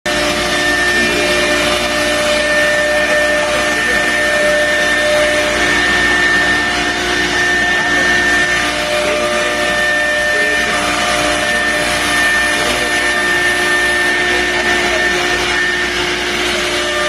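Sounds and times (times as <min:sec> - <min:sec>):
cnc router running: 0:00.1 - 0:17.0
spindle high whine: 0:00.1 - 0:17.0.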